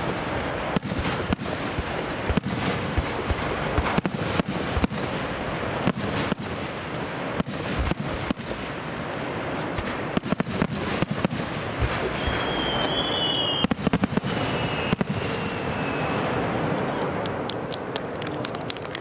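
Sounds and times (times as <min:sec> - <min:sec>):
fireworks bangs: 0:00.0 - 0:19.0
fireworks crackling: 0:00.0 - 0:19.0
high thin whistle: 0:12.1 - 0:13.7, 0:14.4 - 0:16.2.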